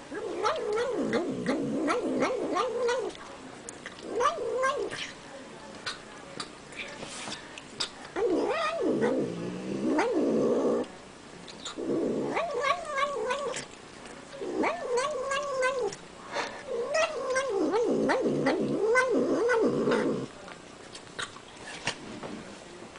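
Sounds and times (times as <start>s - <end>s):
cat moaning while eating: 0.1s - 3.2s, 3.9s - 5.1s, 8.2s - 10.9s, 11.6s - 13.7s, 14.4s - 20.4s.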